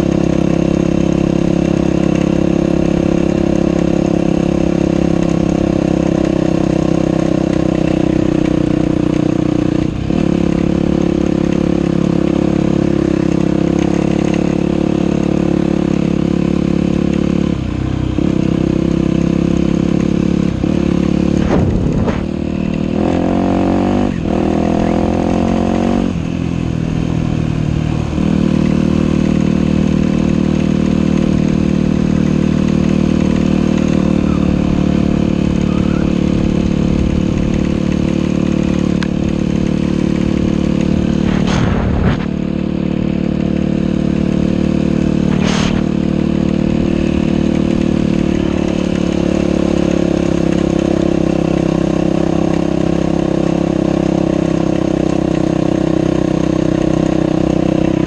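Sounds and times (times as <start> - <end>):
dirt bike engine running: 0.0 - 58.0
brief noises: 45.3 - 45.9.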